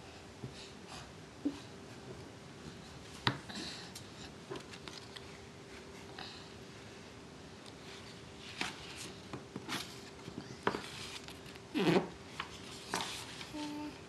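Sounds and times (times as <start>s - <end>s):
faint steady hum: 0.0s - 14.0s
paper rustling: 8.0s - 13.9s.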